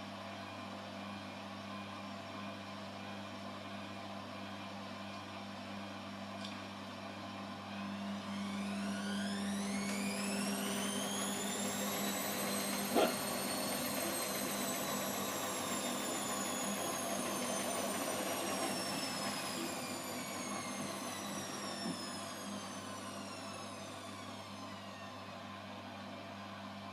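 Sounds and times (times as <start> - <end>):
washing machine motor whining: 7.3 - 26.7.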